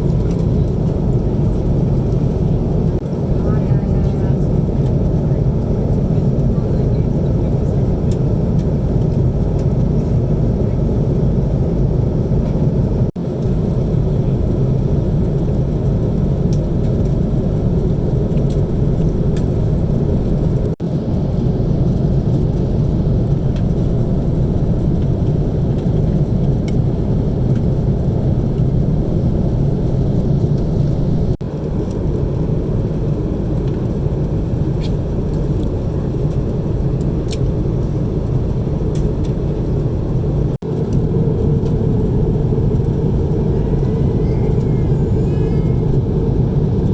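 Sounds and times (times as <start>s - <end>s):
airplane cabin engine rumble: 0.0s - 46.9s.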